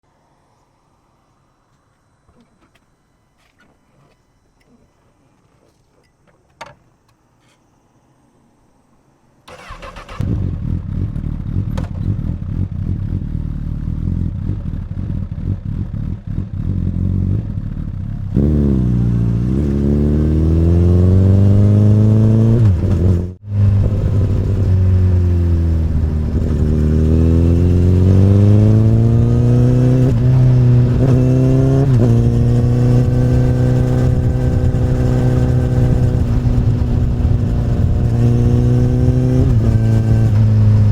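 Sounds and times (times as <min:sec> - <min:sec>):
motorcycle engine starting and idling: 0:09.4 - 0:20.0
motorcycle riding off revving: 0:09.5 - 0:40.9.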